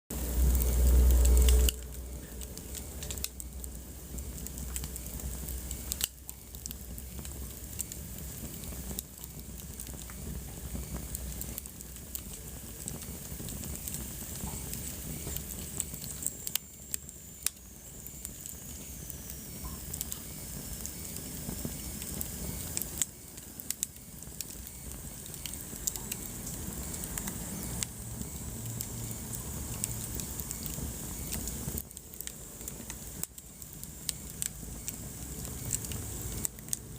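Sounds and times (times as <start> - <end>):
wood fire crackling: 0.1 - 36.9
faint high whistle: 14.5 - 29.2.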